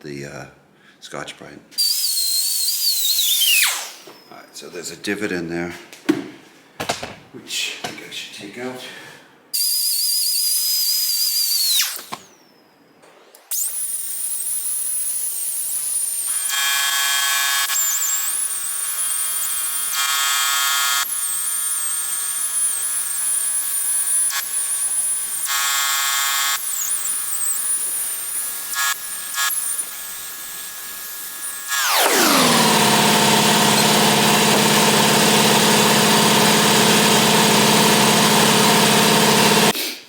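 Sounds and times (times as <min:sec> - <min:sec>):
rotary tool grinding metal: 0:13.5 - 0:39.8.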